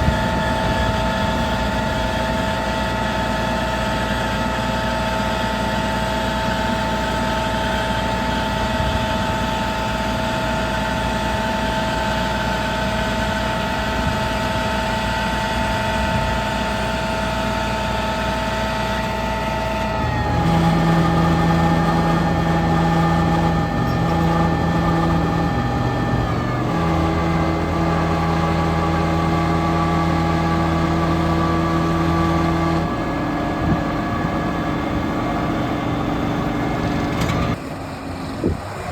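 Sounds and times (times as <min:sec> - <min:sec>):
diesel truck engine idling: 0:15.3 - 0:38.9
deeper steady hum: 0:19.8 - 0:37.6.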